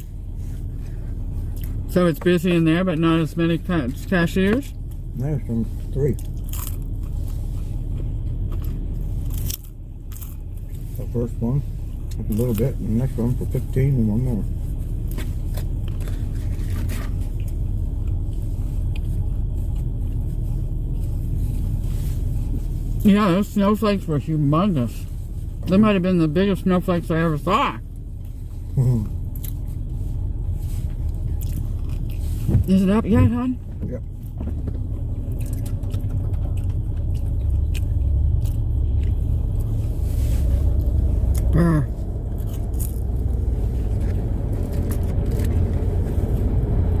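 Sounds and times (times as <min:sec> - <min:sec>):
car engine idling: 0:00.0 - 0:47.0
car heater running: 0:00.0 - 0:47.0
person chewing food: 0:01.4 - 0:01.8, 0:06.2 - 0:10.9, 0:15.0 - 0:21.0, 0:28.2 - 0:29.7, 0:30.8 - 0:32.5, 0:35.2 - 0:39.8.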